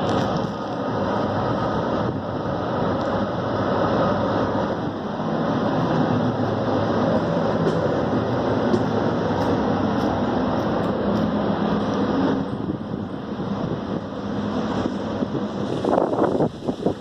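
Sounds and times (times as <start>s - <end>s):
air conditioning unit drone: 0.0s - 17.0s
wind on microphone: 0.0s - 17.0s.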